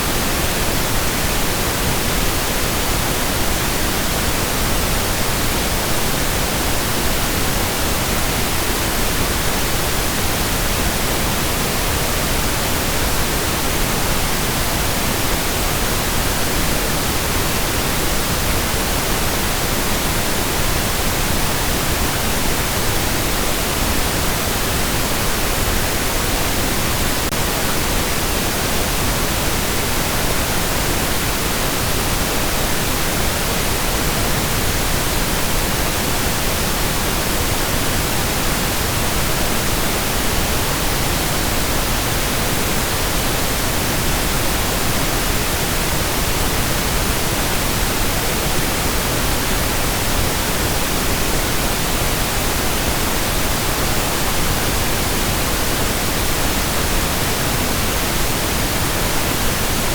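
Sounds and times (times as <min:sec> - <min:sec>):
pink noise hiss: 0:00.0 - 0:59.9.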